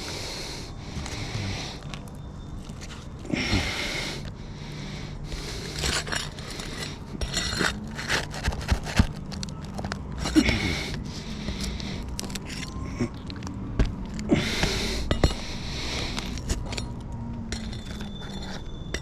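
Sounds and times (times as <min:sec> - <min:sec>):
heavy breath: 0:00.0 - 0:02.0, 0:03.0 - 0:07.8, 0:10.2 - 0:13.3, 0:14.2 - 0:16.9
roof shingles scraping and crackling: 0:05.4 - 0:14.3.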